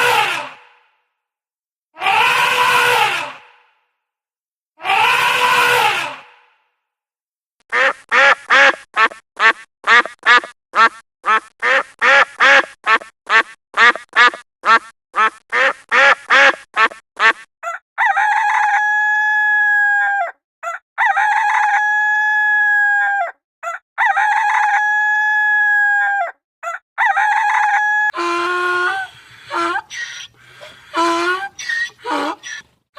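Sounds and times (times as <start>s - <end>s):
poultry long drawn-out calls: 2.0s - 3.6s, 4.8s - 6.4s, 27.1s - 32.8s
poultry quick short calls: 28.2s - 32.7s.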